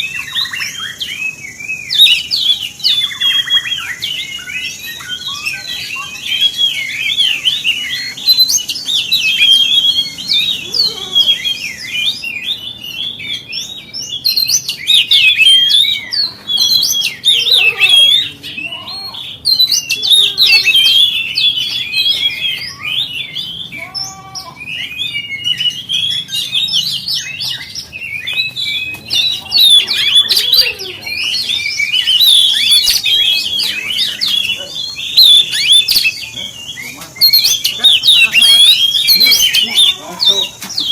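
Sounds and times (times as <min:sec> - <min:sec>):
bird singing whistles and chirps: 0:00.0 - 0:40.9.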